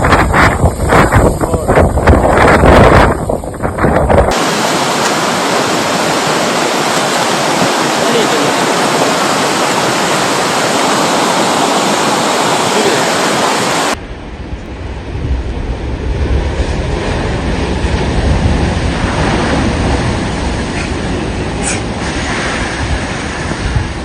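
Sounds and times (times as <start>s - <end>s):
loud rushing noise: 0.0s - 24.0s
low rumbling noise: 0.0s - 24.0s
wind buffeting microphone: 0.0s - 24.0s.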